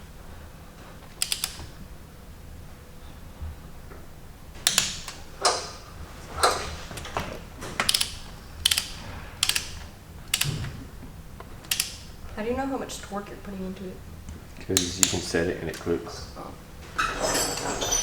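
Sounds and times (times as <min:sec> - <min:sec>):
ratchet wrench clicking: 0:07.8 - 0:10.6, 0:11.6 - 0:12.1.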